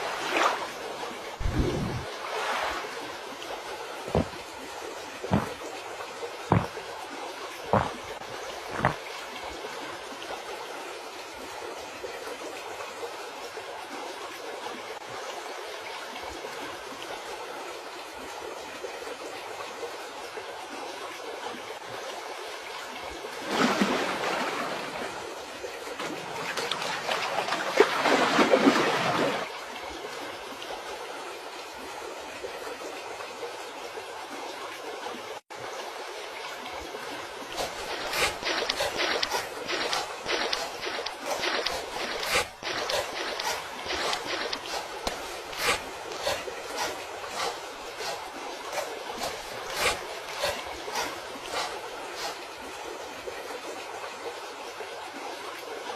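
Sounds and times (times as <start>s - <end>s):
river water rushing: 0.0s - 10.1s, 36.1s - 53.3s.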